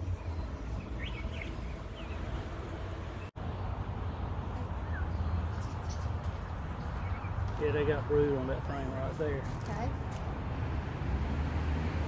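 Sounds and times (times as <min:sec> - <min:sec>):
low outdoor background rumble: 0:00.0 - 0:07.3.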